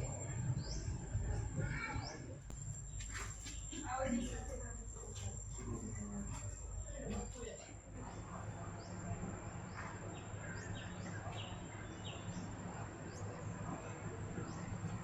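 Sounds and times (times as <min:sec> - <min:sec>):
bird chirping: 0:00.0 - 0:04.4, 0:08.1 - 0:14.8.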